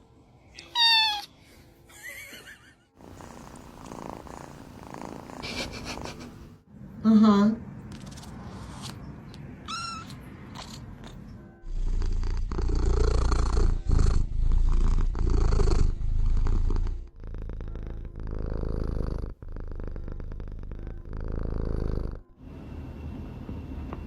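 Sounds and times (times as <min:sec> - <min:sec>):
cat purring: 0:03.0 - 0:06.6, 0:10.5 - 0:22.4.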